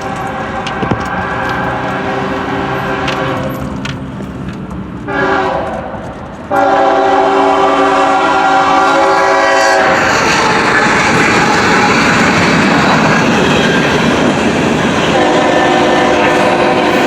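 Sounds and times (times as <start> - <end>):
locomotive air horn: 0.0 - 3.7, 5.1 - 12.4, 15.0 - 17.0
train rolling past: 0.0 - 17.0.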